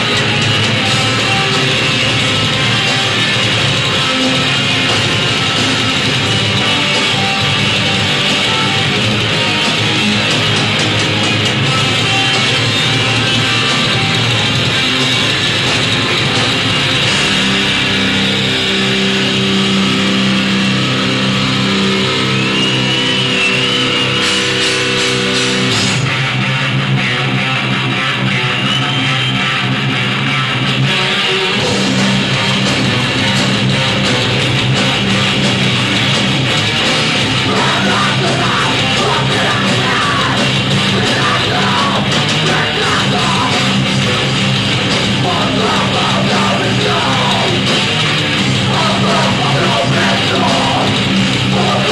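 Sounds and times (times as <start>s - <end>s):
bass guitar: 0.0s - 51.9s
distorted electric guitars: 0.0s - 51.9s.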